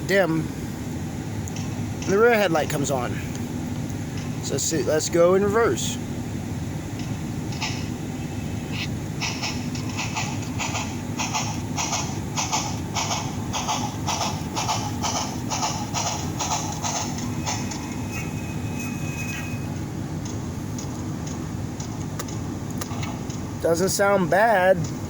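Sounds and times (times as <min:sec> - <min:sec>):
model train steam chuffs: 0:00.0 - 0:06.1, 0:07.2 - 0:20.0
thin steady high tone: 0:16.7 - 0:20.0.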